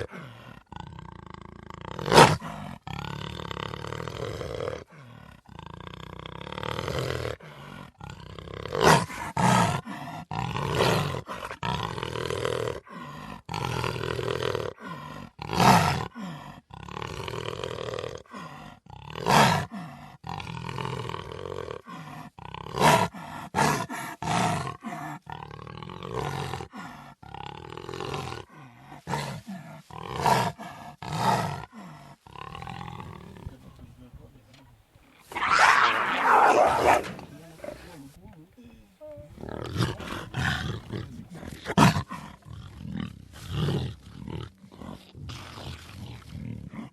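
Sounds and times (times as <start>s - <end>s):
cheetah calling: 34.6s - 41.4s.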